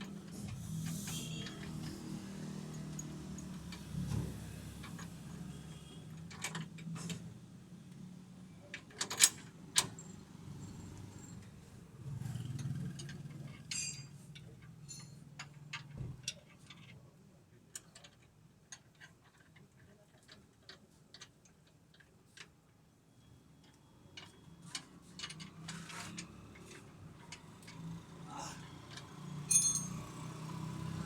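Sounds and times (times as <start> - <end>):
hand tools and metal parts clicking: 12.5 - 17.0, 23.6 - 31.0.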